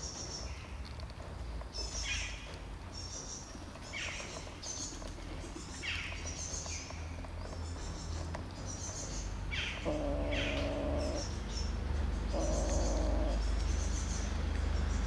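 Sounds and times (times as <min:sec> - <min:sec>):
kittens eating wet food: 0:06.2 - 0:14.7
high bird chirps: 0:08.8 - 0:14.3
steady low rumble: 0:09.4 - 0:15.0
downward-sweeping bird call: 0:09.6 - 0:11.4, 0:12.3 - 0:14.0.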